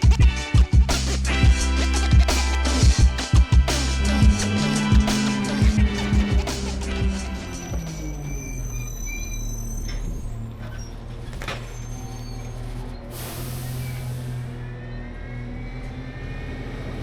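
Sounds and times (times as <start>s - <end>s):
garbage truck engine hum: 0.0s - 17.0s
burst of hiss: 13.1s - 14.5s.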